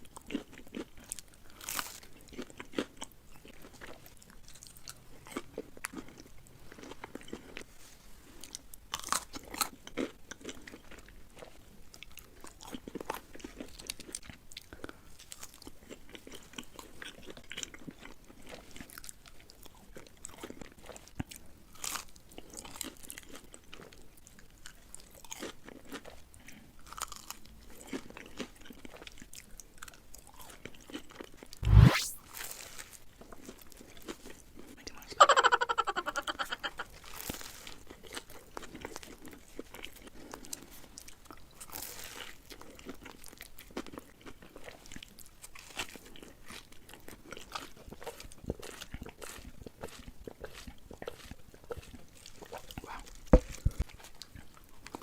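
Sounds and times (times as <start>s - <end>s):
crunchy chewing: 0.1s - 7.7s, 8.4s - 24.0s, 24.6s - 30.9s, 36.9s - 55.0s
whoosh rising in pitch: 31.6s - 32.2s.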